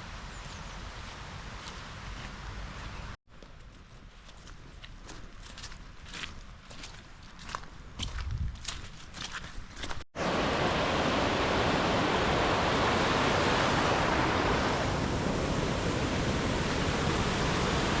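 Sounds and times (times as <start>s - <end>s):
steady rushing noise: 10.2s - 18.0s.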